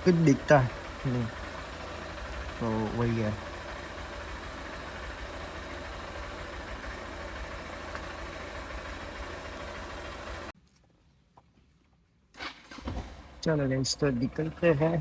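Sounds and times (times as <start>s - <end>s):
motorcycle engine idling: 0.0s - 10.6s, 13.0s - 15.0s.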